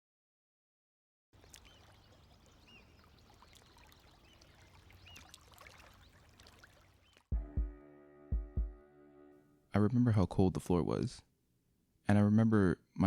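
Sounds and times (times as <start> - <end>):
water trickling and bubbling: 1.4 - 7.2.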